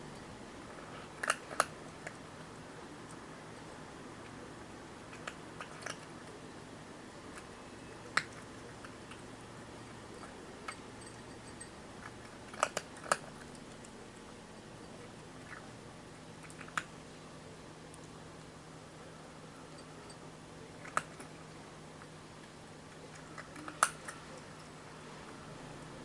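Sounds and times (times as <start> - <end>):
kitten chewing crunches: 0.6 - 2.3, 7.2 - 14.4, 20.7 - 22.2.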